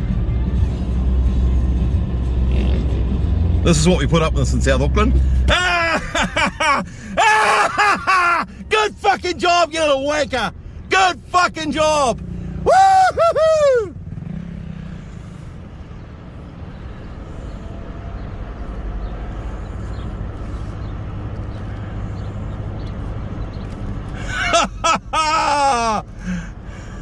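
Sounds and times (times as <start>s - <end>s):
low engine rumble: 0.0s - 27.0s
man whooping: 5.4s - 9.2s, 11.8s - 14.0s, 24.4s - 26.4s.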